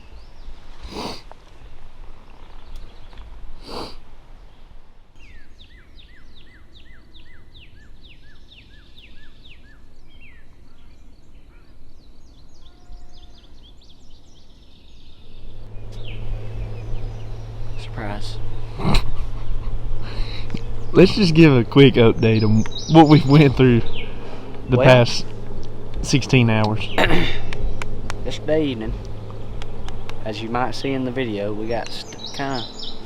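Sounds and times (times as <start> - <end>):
songbird whistling: 5.2 - 26.0, 31.6 - 33.0
steady low hum: 9.7 - 33.0.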